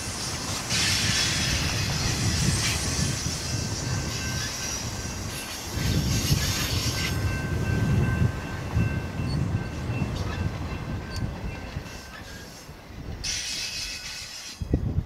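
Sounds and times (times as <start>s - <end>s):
train wheels rumbling on rails: 0.0s - 15.0s
thin wheel squeal: 11.8s - 14.6s.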